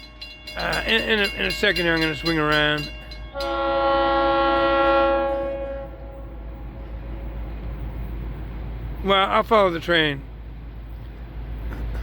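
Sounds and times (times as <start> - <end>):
train rushing rumble: 0.0 - 12.0
locomotive air horn blast: 3.3 - 7.4.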